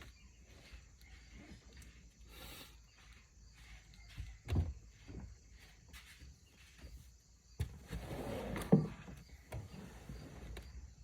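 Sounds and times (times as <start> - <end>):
scraping rustle: 7.7 - 11.0.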